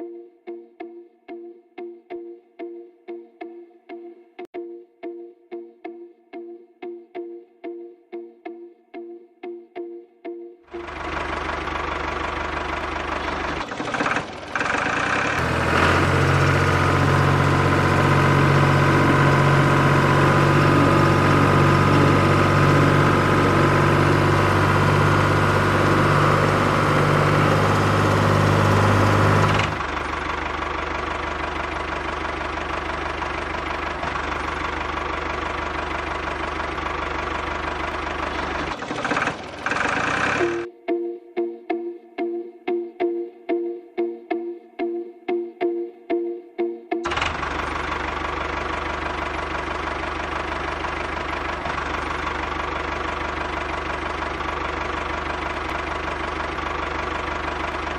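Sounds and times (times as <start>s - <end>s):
engine-like mechanical running: 10.7s - 40.7s, 47.0s - 57.9s
heavy low machine hum: 15.4s - 38.7s.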